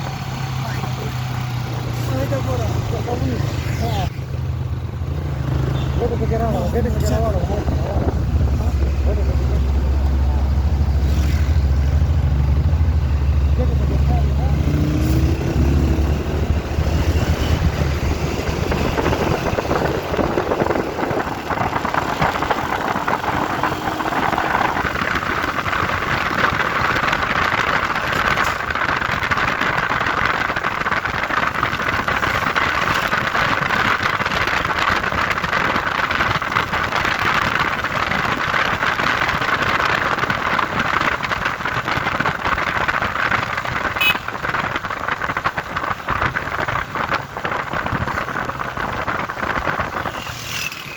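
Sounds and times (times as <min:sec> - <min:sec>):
truck engine droning: 0:00.0 - 0:35.6.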